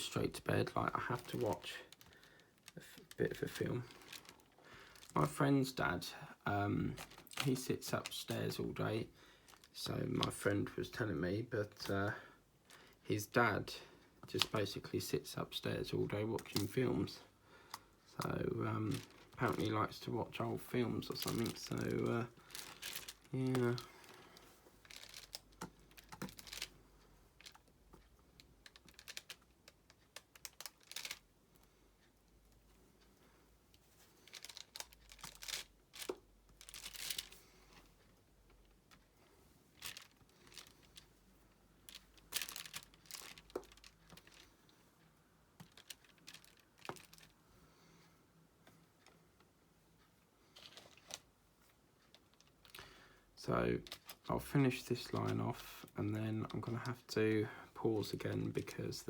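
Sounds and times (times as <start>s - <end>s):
plastic film rustling: 0.0s - 11.0s, 14.2s - 31.3s, 33.7s - 37.8s, 39.7s - 41.0s, 41.8s - 44.6s, 45.6s - 47.4s, 50.6s - 51.3s, 53.5s - 59.0s.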